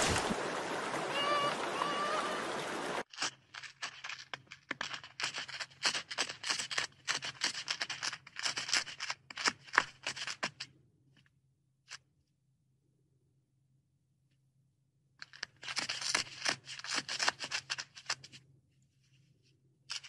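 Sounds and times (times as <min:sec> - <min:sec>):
running water: 0:00.0 - 0:03.1.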